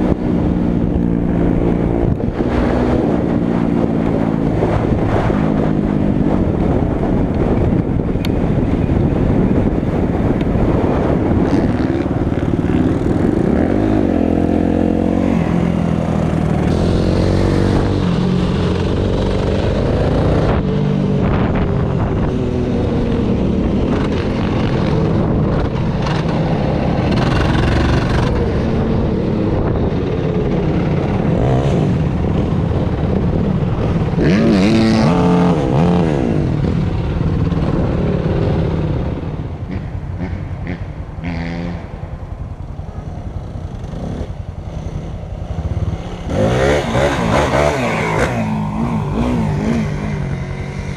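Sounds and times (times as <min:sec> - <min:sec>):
off-road vehicle engine revving: 0:46.2 - 0:50.9.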